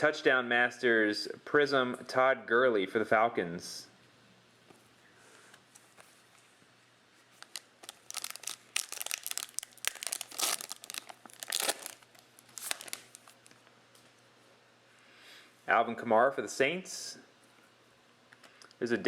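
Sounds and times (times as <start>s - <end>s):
wrapper tearing and crinkling: 7.4s - 13.5s.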